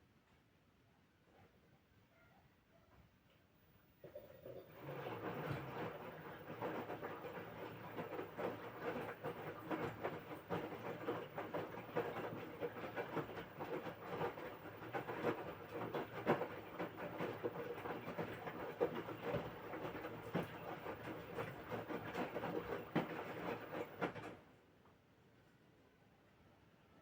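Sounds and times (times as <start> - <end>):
washing machine drum churning: 4.0 - 24.4.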